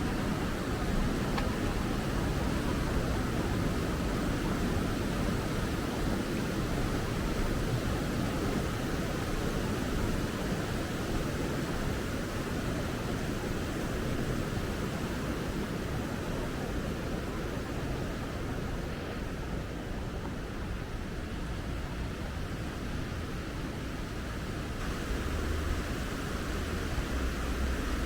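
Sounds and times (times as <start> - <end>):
river rushing: 24.4 - 28.0.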